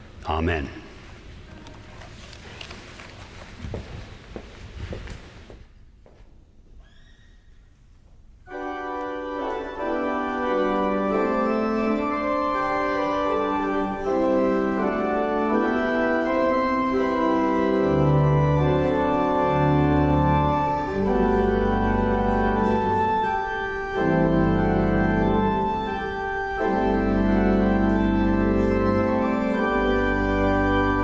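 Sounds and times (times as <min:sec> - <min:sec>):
church organ chords: 0:08.5 - 0:31.0
deep organ bass notes: 0:08.5 - 0:31.0.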